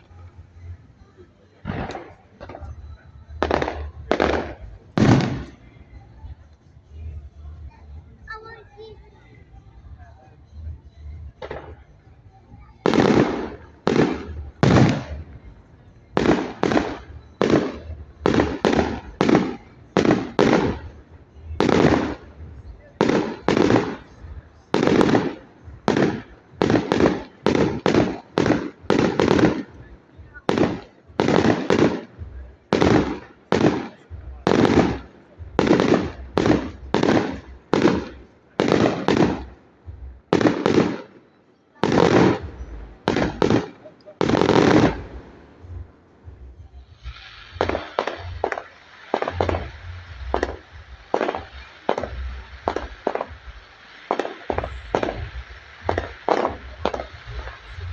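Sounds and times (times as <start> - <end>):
firework bangs: 1.6 - 6.0, 12.8 - 15.4, 16.1 - 41.2, 41.8 - 57.9.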